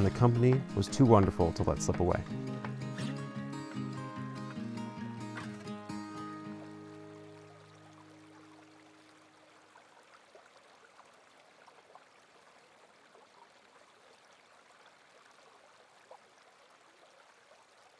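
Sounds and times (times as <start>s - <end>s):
held music notes: 0.0s - 8.6s
stream trickling: 0.0s - 17.9s.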